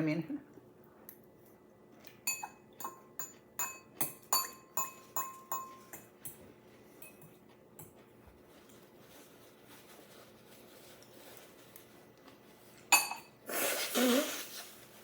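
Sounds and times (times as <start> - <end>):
metal utensil clinking against bowl: 2.3 - 6.4.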